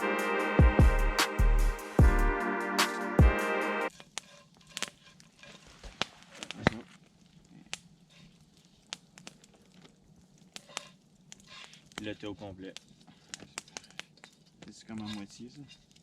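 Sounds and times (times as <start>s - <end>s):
background music: 0.0s - 3.9s
campfire crackling: 0.0s - 16.0s.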